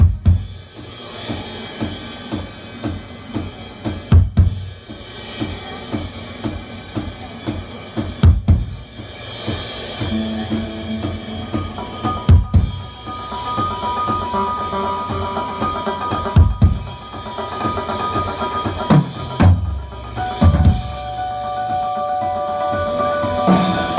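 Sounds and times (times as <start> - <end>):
drum kit beat: 0.0 - 23.9
held instrument notes: 10.1 - 16.4.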